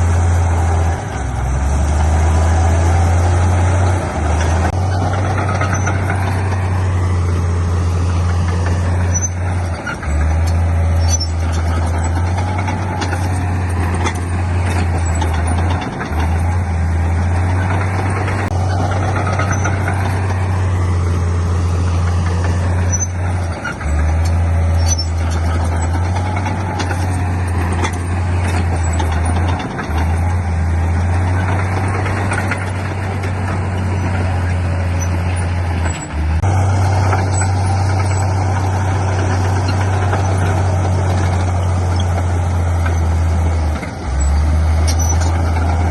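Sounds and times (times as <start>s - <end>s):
diesel construction machinery running: 0.0s - 45.9s.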